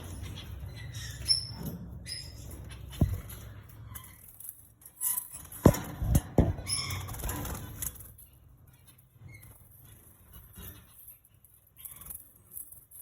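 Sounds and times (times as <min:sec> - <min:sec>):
sharp thumps in a cage: 0:02.9 - 0:03.5, 0:05.4 - 0:07.6.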